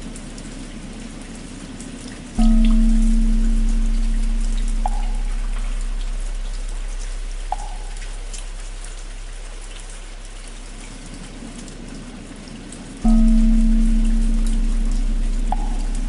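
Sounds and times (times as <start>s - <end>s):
steady rain: 0.0s - 16.0s
large temple bell ringing: 2.4s - 9.3s, 13.0s - 16.0s.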